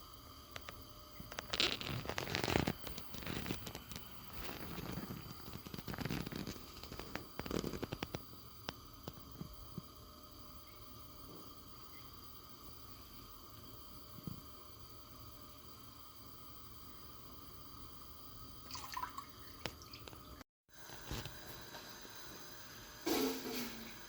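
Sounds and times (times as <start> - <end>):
rustling and crackling: 1.3 - 8.2.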